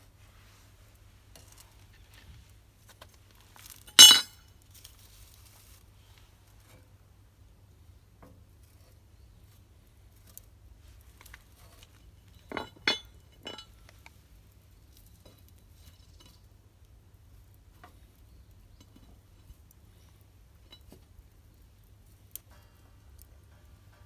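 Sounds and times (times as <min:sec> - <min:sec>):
metal utensils clinking: 0:03.9 - 0:04.3.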